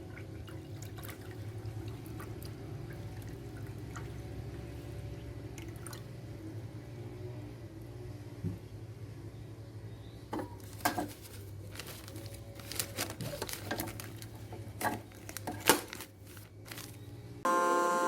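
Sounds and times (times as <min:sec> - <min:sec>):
crinkling of small objects: 0:10.6 - 0:17.2.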